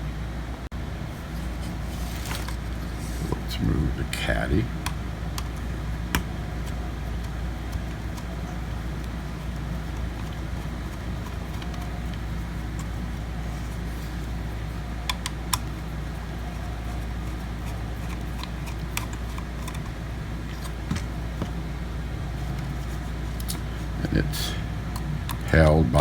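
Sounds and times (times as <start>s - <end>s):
steady low hum: 0.0s - 26.0s
hard drive clicks in metal caddy: 15.0s - 15.8s.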